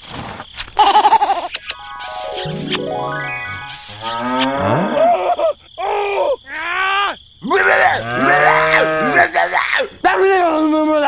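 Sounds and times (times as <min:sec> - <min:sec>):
calf mooing: 0:07.9 - 0:09.3.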